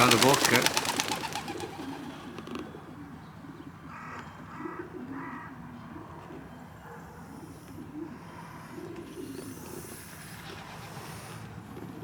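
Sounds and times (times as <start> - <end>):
pigeons cooing: 0.0 - 3.7.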